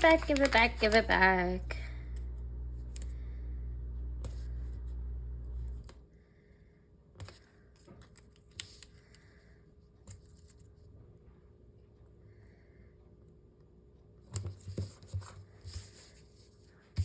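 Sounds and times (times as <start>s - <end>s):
paper pages clicking and tapping: 0.0s - 1.6s
low steady rumble: 0.0s - 6.0s.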